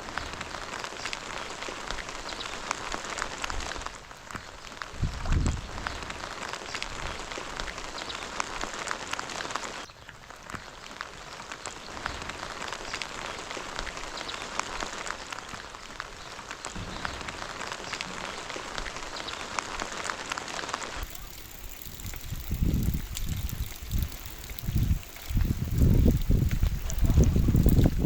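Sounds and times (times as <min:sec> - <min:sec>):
heavy rain falling: 0:12.2 - 0:28.0.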